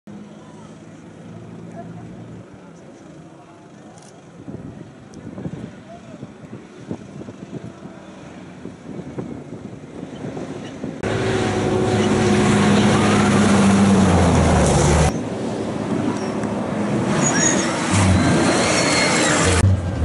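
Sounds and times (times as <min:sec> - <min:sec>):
faint vehicle noise: 0:00.1 - 0:20.0
wind on microphone: 0:04.4 - 0:14.4
truck engine deep drone: 0:10.8 - 0:17.1, 0:17.8 - 0:20.0.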